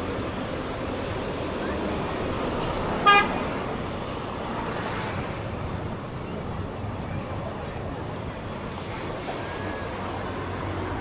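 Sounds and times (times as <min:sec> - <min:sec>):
traffic noise: 0:00.0 - 0:11.0
vehicle horn toot: 0:03.0 - 0:03.4.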